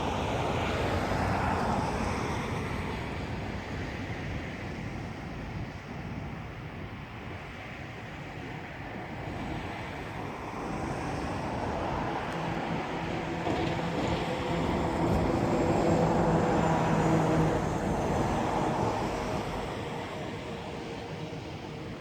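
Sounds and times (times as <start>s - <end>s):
passing vehicle engine rumble: 9.3s - 22.0s.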